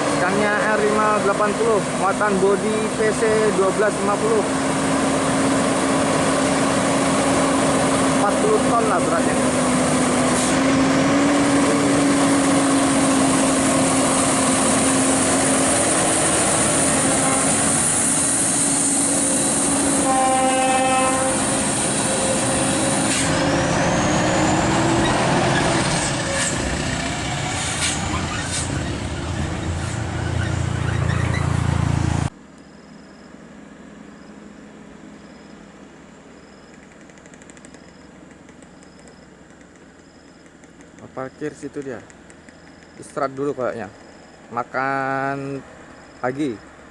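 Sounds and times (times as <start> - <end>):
truck engine droning past: 0.7 - 32.3
truck horn: 16.7 - 17.9, 19.8 - 22.9.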